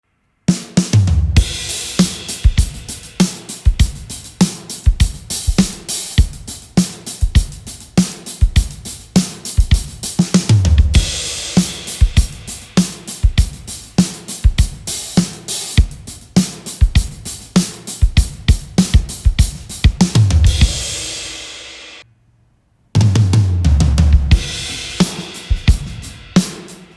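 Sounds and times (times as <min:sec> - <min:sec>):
drum kit groove: 0:00.5 - 0:22.0, 0:23.0 - 0:26.9
cymbal crashes: 0:01.4 - 0:06.5, 0:11.0 - 0:15.8, 0:20.5 - 0:22.0, 0:24.4 - 0:26.9.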